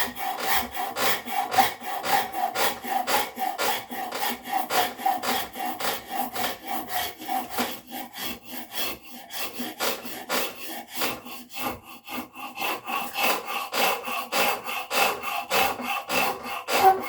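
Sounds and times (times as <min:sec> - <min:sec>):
hand tool rasping wood: 0:00.0 - 0:17.0.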